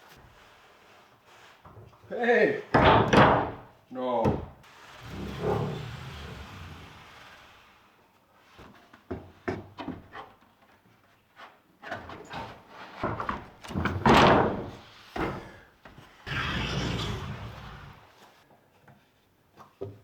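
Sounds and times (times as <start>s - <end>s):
cabinet doors knocking and clicking: 2.7s - 4.6s, 13.2s - 15.5s
cabinet door thud: 2.8s - 3.7s.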